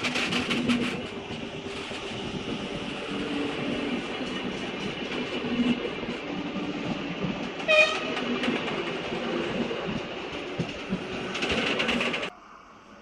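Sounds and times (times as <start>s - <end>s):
train rail rumble and clatter: 0.0s - 12.4s
short high train horn: 7.7s - 8.2s.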